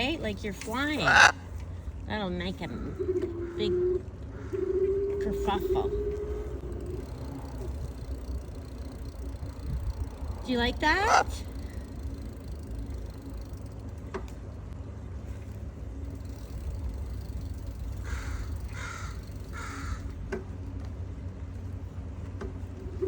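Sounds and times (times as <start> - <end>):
bird cawing: 1.0 - 1.4, 2.8 - 5.2, 10.8 - 12.2, 17.9 - 20.2
wind rumble on microphone: 9.2 - 11.1.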